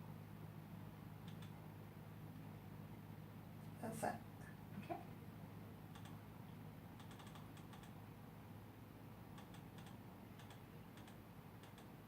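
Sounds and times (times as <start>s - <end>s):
steady low hum: 0.0s - 12.0s
computer keyboard typing: 5.9s - 6.2s, 7.0s - 8.0s, 9.4s - 11.9s.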